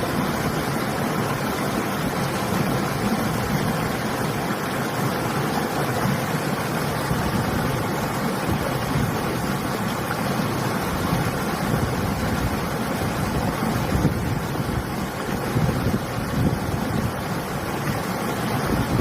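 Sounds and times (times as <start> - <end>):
river water flowing: 0.0 - 19.0
wind on microphone: 7.0 - 9.7, 10.8 - 19.0.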